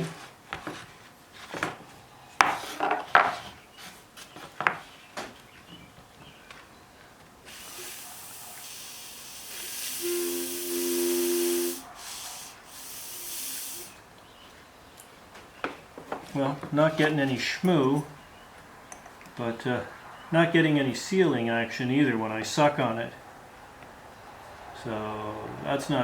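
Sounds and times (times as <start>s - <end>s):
airy hiss of breath through hose: 7.4s - 14.0s
low buzzing tone: 9.0s - 11.8s.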